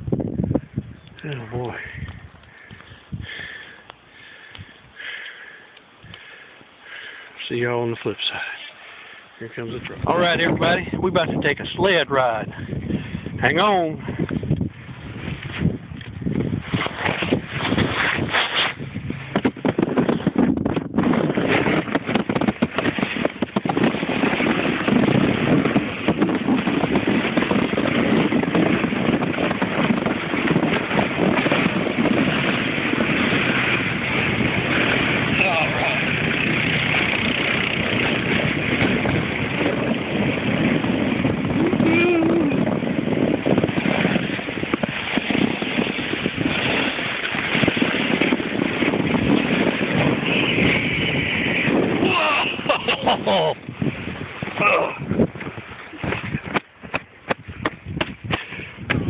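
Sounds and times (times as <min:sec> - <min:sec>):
sled scraping over snow: 0:14.8 - 0:59.0
rapid crackles and knocks: 0:15.4 - 0:35.1, 0:55.2 - 0:59.0.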